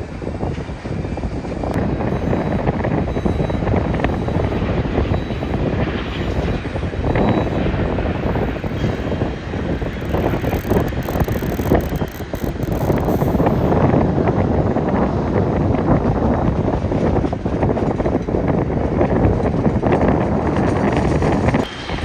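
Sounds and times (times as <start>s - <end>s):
jet engine noise: 0.0s - 22.0s
wind buffeting microphone: 0.0s - 22.0s.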